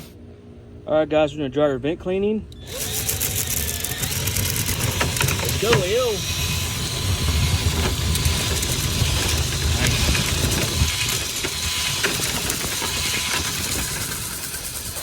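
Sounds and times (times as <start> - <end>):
vent cleaning machine rumbling: 0.0 - 15.0
scattered clicks and knocks: 2.8 - 6.2, 7.0 - 15.0.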